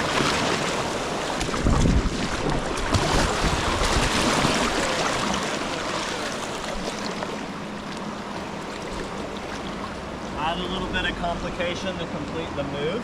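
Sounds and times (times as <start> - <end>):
wind buffeting microphone: 1.3 - 4.7.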